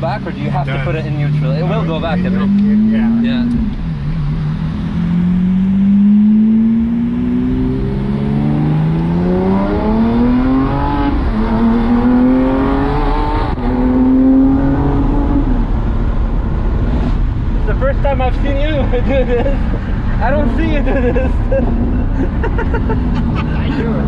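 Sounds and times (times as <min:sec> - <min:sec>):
sports car engine accelerating: 0:00.0 - 0:24.0.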